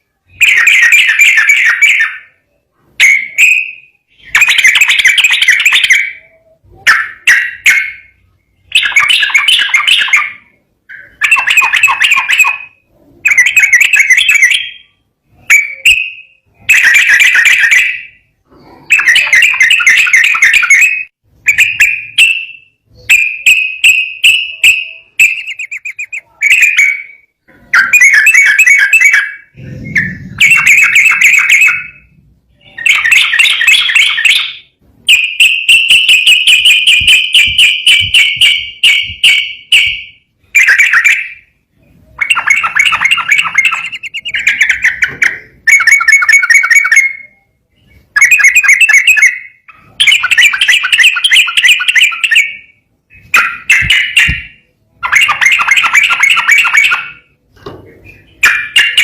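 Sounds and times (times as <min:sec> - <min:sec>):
bulbul singing trilled phrases: 0:00.3 - 0:41.5, 0:42.2 - 0:57.3.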